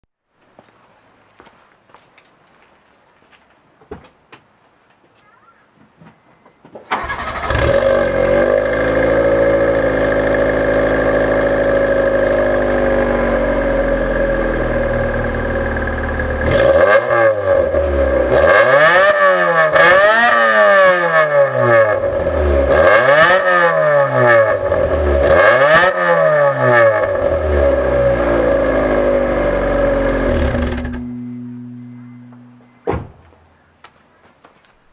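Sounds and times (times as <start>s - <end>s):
car engine starting and revving: 6.9s - 32.4s.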